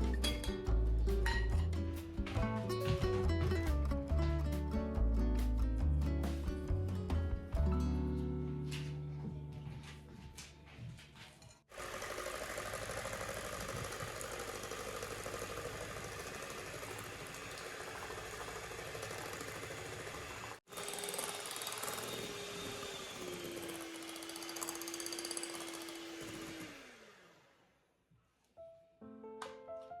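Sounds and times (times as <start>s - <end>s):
electric mixer whirring: 11.7s - 27.6s.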